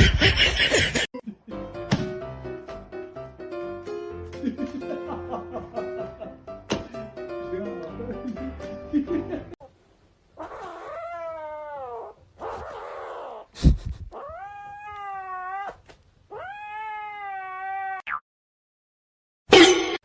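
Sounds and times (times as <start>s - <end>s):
cat yowling: 10.4s - 13.5s, 14.2s - 18.0s.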